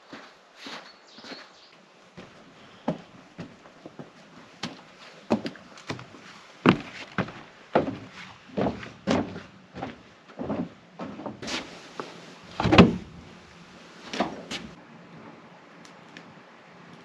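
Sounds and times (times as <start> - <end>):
irregular knocks and thuds: 2.2 - 11.6, 12.5 - 13.3.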